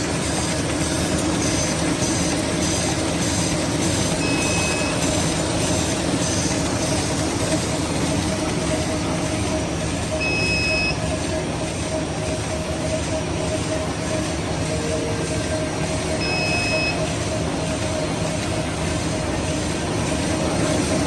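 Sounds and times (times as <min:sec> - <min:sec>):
packing machine running: 0:00.0 - 0:21.0
short high beeps: 0:10.2 - 0:11.0, 0:16.2 - 0:17.0.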